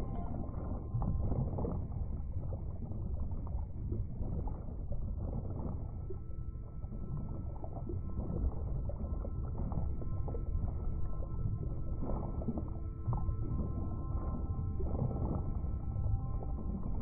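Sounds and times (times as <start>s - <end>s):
faint held tones: 0.0s - 1.4s
muffled underwater water rumble: 0.0s - 17.0s.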